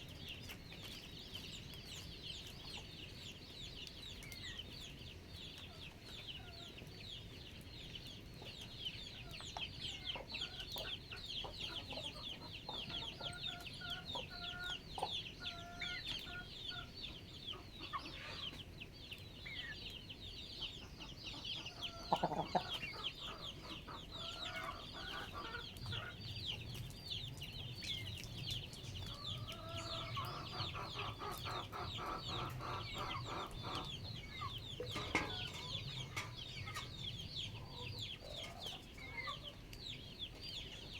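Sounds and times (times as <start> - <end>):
chickens clucking: 0.1 - 40.9.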